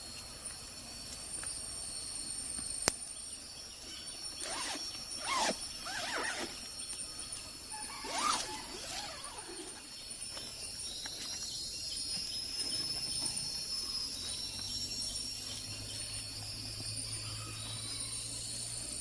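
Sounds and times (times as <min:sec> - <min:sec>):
forest insects droning: 0:00.0 - 0:19.0
rising and falling animal calls: 0:07.8 - 0:09.6.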